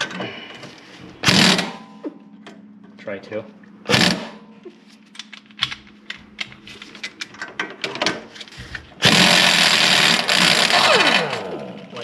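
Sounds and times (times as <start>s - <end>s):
loud power tool running: 1.3s - 1.7s, 3.9s - 4.3s, 9.0s - 12.0s.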